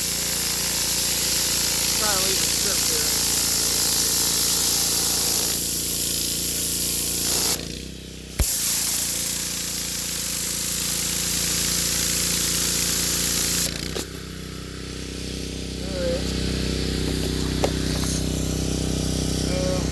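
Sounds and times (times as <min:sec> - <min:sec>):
pressure washer engine running: 0:00.0 - 0:19.9
water spray hissing on concrete: 0:00.0 - 0:19.9
spray trigger click: 0:08.4 - 0:08.9.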